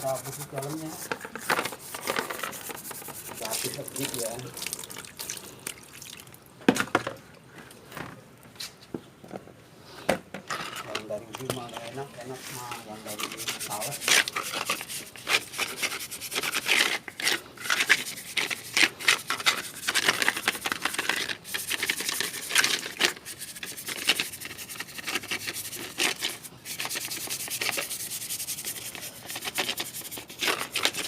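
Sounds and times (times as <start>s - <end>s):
scrubbing strokes on a surface: 0.0s - 4.7s, 11.8s - 31.0s.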